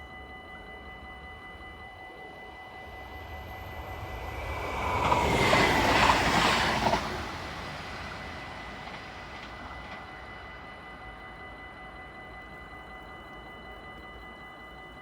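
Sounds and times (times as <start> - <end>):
steady high tone: 0.0 - 15.0
train rushing past: 2.4 - 10.9.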